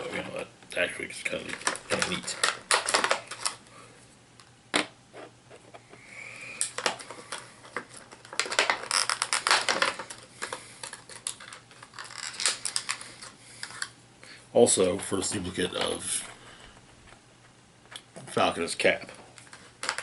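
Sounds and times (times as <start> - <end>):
packaging rustling: 1.4 - 3.7, 6.7 - 13.9.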